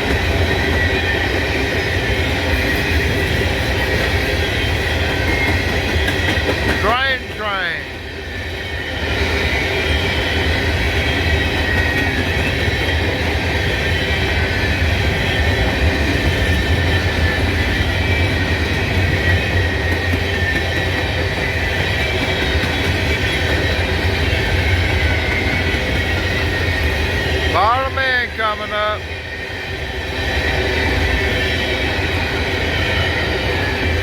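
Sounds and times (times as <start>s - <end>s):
freight train wheels rumbling: 0.0s - 34.0s
high wheel squeal: 0.4s - 6.9s, 8.3s - 28.8s.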